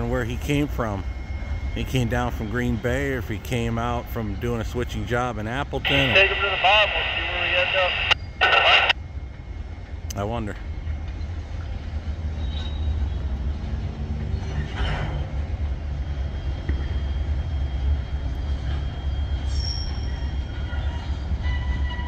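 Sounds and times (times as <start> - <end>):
freight train cars rumbling: 0.0 - 22.0
steel wheels squealing: 12.3 - 13.3, 18.6 - 22.0.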